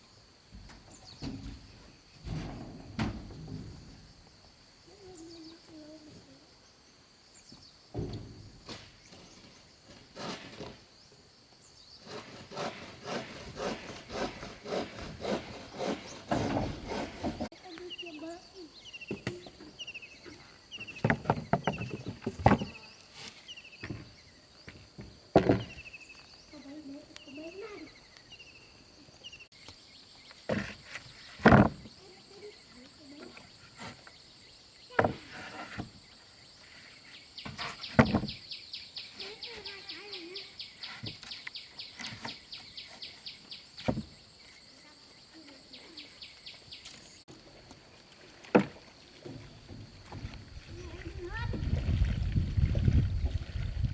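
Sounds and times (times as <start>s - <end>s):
insect chirping: 0.0s - 53.9s
bird chirping: 17.6s - 24.7s, 36.0s - 44.8s, 45.4s - 47.3s.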